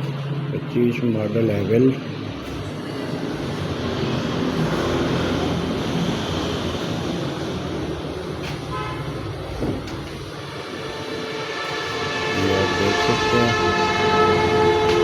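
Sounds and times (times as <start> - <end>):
road traffic: 0.0 - 15.0
vehicle horn: 8.4 - 15.0.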